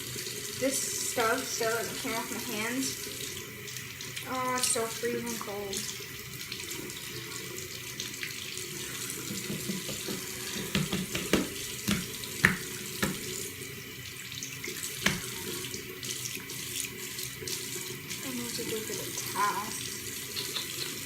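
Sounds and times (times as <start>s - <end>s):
tap water running into sink: 0.0s - 21.0s
hands rinsing under water: 8.7s - 13.8s, 14.4s - 16.4s
sharp splashes and knocks: 9.3s - 13.4s, 15.0s - 15.4s.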